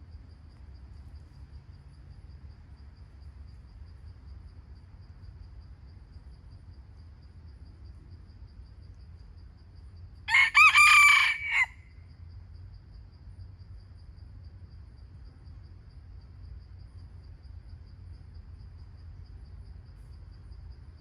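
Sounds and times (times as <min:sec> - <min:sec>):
high insect chirps: 0:00.0 - 0:21.0
rooster crowing: 0:10.3 - 0:12.0.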